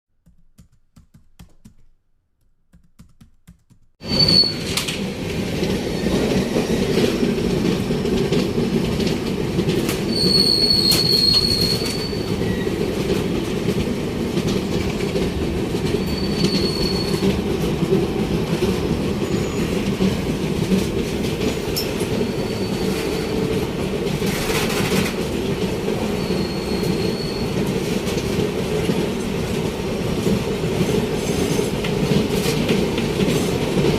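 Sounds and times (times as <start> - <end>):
high wheel squeals: 4.0 - 5.0, 10.0 - 12.9, 15.9 - 17.4, 19.2 - 19.9, 21.8 - 23.5, 26.0 - 27.6
train wheels rumbling on track: 4.0 - 33.9.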